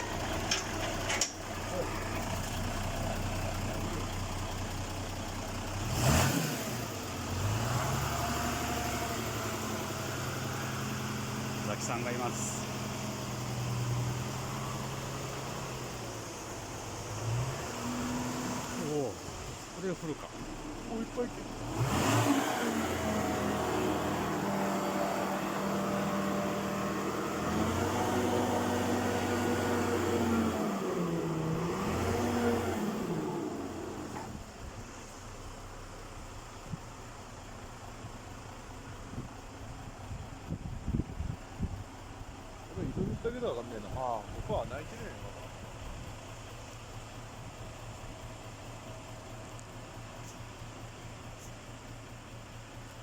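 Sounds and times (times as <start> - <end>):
crane engine humming: 0.0 - 5.8
truck engine running: 0.0 - 53.0.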